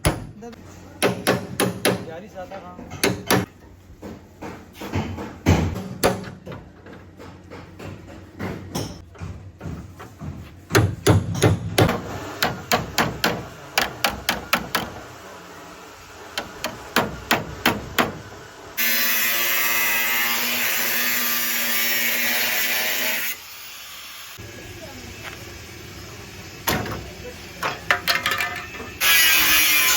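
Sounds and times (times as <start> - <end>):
hammer on sheet metal: 1.0 - 2.2.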